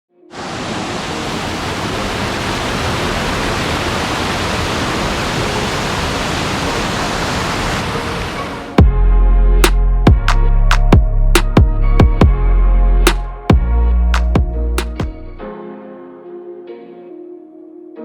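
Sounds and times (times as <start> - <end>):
waterfall rushing: 0.3 - 8.8.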